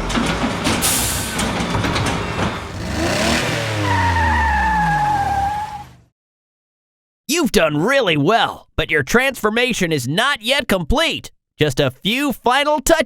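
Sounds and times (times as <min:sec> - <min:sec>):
tyres skidding: 0:00.0 - 0:06.1
cartoon car engine revving: 0:02.6 - 0:06.1.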